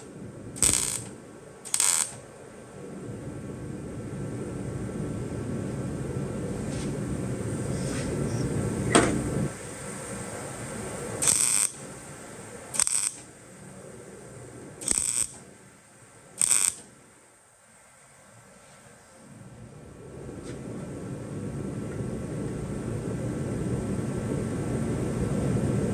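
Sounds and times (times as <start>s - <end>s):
welder bursts: 0.0s - 2.3s, 11.0s - 13.4s, 14.8s - 15.5s, 16.4s - 17.0s
steady hum: 0.0s - 18.4s, 19.0s - 25.9s.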